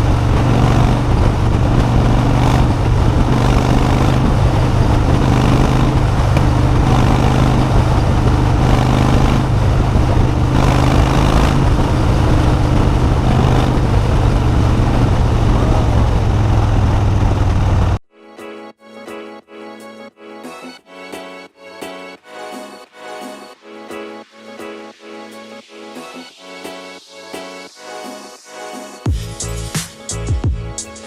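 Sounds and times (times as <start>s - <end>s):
motorcycle engine cruising: 0.0s - 18.0s
wind noise on microphone: 0.0s - 18.0s.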